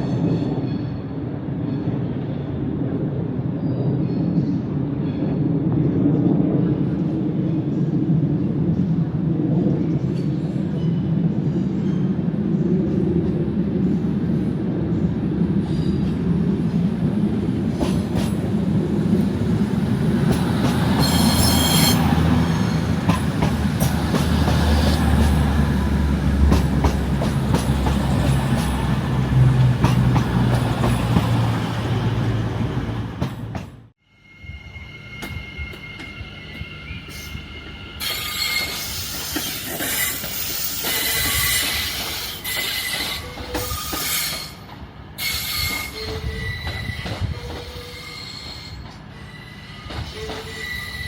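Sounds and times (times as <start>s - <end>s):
train rumbling: 0.0s - 51.0s
train wheel squeal: 10.1s - 12.2s, 15.6s - 16.2s, 20.2s - 25.4s, 33.2s - 51.0s.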